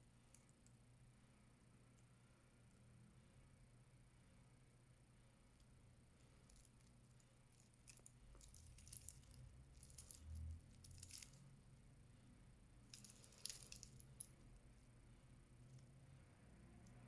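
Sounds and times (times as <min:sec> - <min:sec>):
metal watch bracelet clinking: 0:07.6 - 0:11.4, 0:12.9 - 0:14.4.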